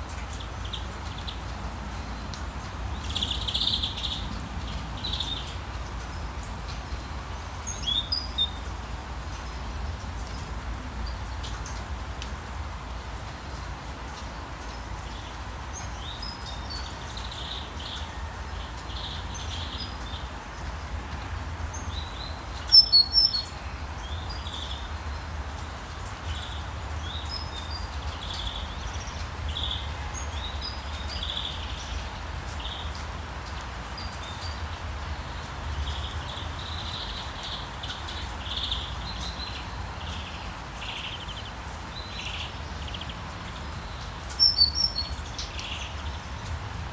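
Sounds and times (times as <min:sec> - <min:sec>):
bird chirps: 0:22.7 - 0:23.5, 0:43.9 - 0:46.0.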